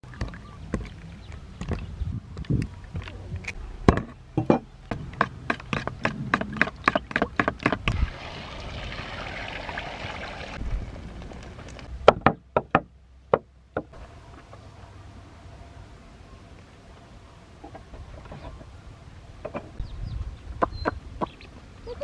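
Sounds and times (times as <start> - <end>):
running water: 7.8 - 11.9.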